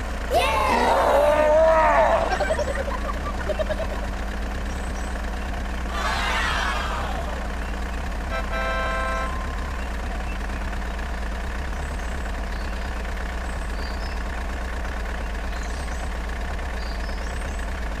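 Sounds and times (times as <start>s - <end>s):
truck engine idling: 0.0s - 18.0s
truck horn: 7.0s - 9.9s.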